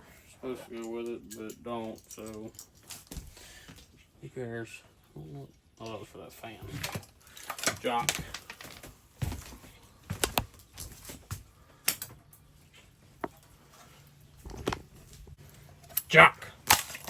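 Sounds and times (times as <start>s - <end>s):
hard parts clicking and knocking: 13.2s - 13.5s, 14.4s - 17.0s.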